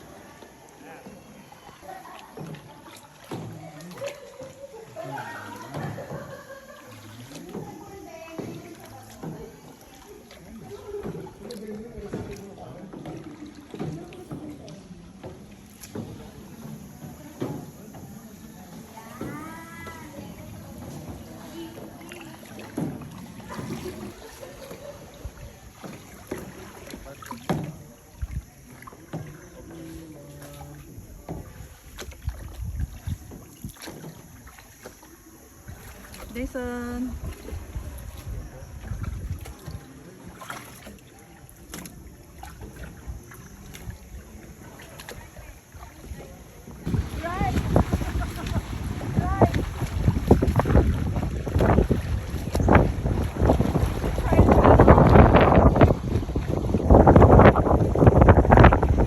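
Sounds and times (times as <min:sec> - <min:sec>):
kayak paddles splashing water: 0:00.0 - 0:59.0
wind rumble on microphone: 0:31.0 - 0:33.6, 0:35.6 - 0:39.8, 0:42.6 - 0:59.0.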